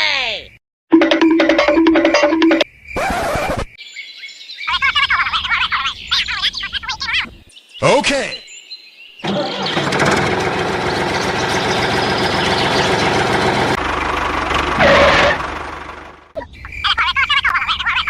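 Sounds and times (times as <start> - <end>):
high chirping calls: 3.8 - 9.8, 11.0 - 13.4, 16.4 - 18.0
small engine running: 9.2 - 16.3.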